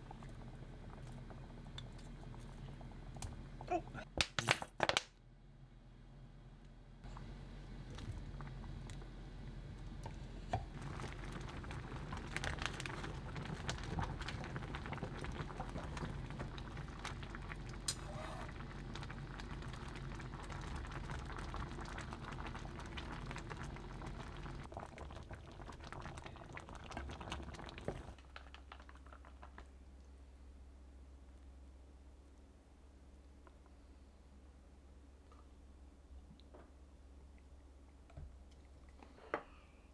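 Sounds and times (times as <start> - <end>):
food crackling in a pan: 10.7 - 29.8.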